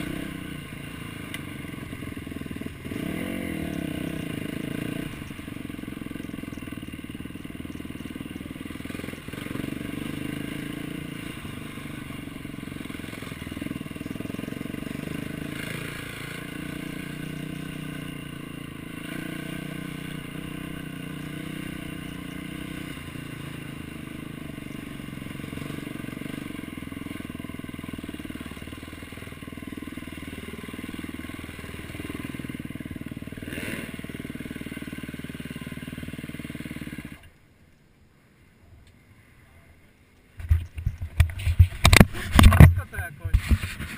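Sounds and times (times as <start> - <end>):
motocross bike engine revving: 0.0 - 37.4, 40.4 - 43.9.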